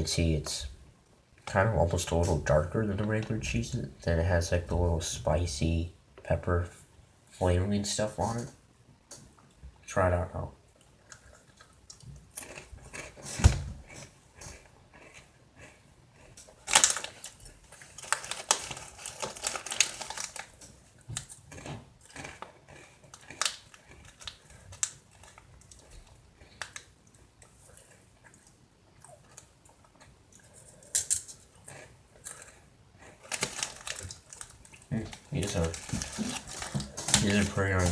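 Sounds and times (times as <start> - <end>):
crackers crunching: 10.8 - 37.9.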